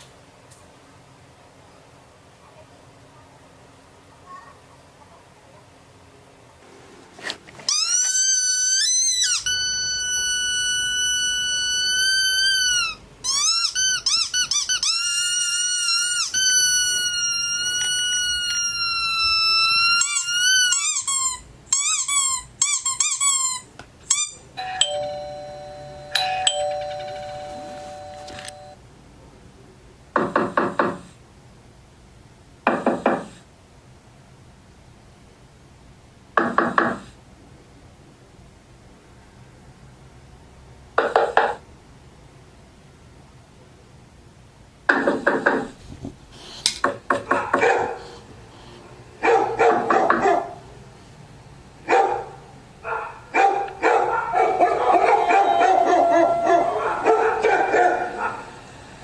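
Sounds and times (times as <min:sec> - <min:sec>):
squeaky dog toy squeaking: 0:07.6 - 0:25.0, 0:54.6 - 0:57.4
two-note doorbell chime: 0:24.6 - 0:28.8, 0:55.4 - 0:57.0.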